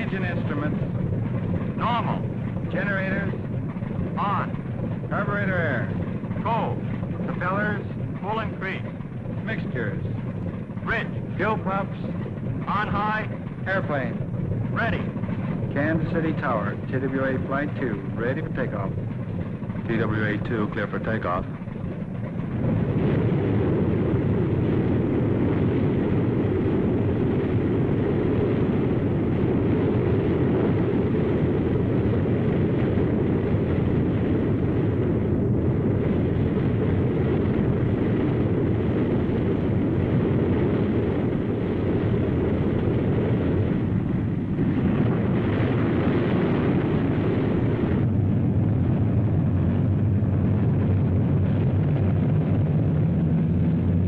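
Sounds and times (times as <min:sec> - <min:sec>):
low hum: 0:00.0 - 0:54.0
propeller plane engines roaring: 0:00.0 - 0:54.0.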